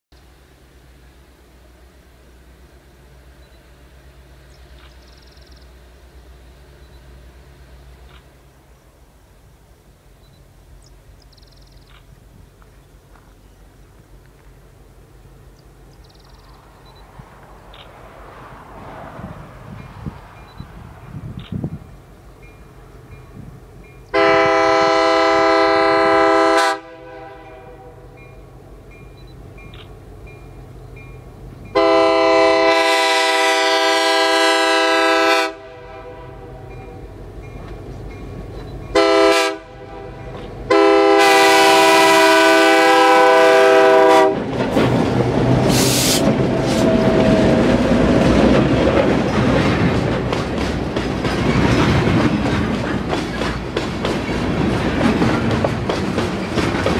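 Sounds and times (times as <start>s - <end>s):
hopper cars rolling on rails: 0.5s - 56.9s
locomotive air horn blasts: 24.1s - 28.3s, 31.7s - 37.0s, 38.9s - 44.5s
locomotives running past: 43.7s - 56.9s.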